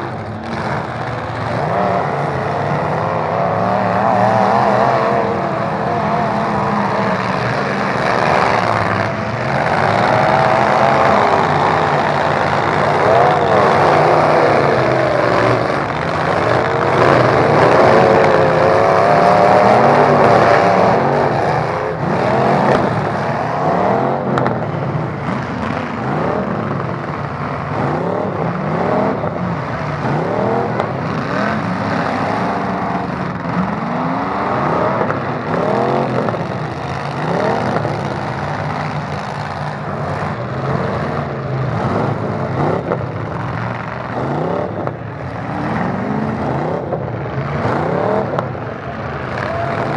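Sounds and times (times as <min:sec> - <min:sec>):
truck engines revving: 0:00.0 - 0:49.9.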